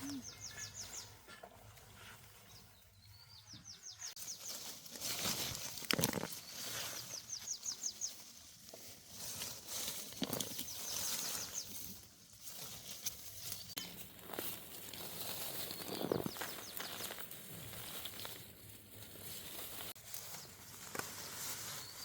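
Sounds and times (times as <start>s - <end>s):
bird chirping: 0.0s - 4.7s, 6.3s - 8.3s, 15.7s - 17.2s
rustling: 4.0s - 22.0s.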